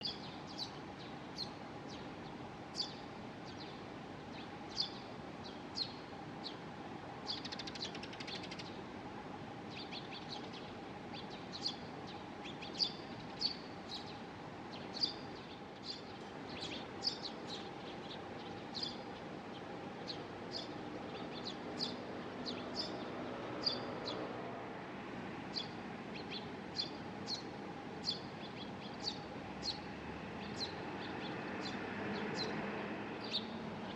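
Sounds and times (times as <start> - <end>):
baby sparrow chirping: 9.7 - 14.2, 14.8 - 19.2, 20.1 - 24.2, 25.5 - 32.6, 33.2 - 33.9.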